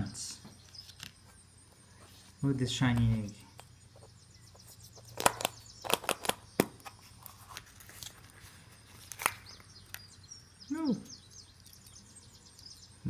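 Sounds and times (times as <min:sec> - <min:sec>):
foil wrapper crinkling: 0:05.1 - 0:09.7.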